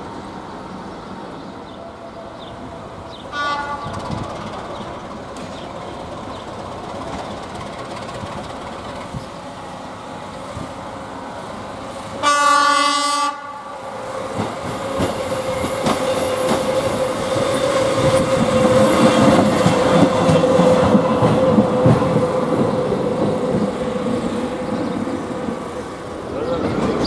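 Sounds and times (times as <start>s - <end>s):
train running past: 0.0s - 27.0s
train horn blast: 3.3s - 4.0s, 12.2s - 13.7s
wheels clacking over rail joints: 3.5s - 9.4s.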